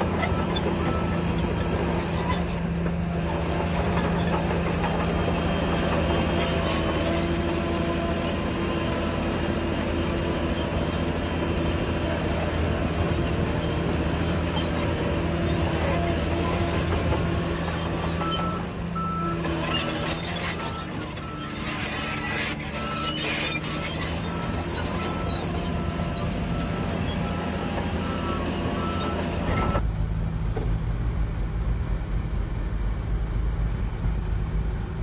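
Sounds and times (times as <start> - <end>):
heavy diesel machinery running: 0.0 - 35.0
reversing beeper beeps: 20.6 - 29.8.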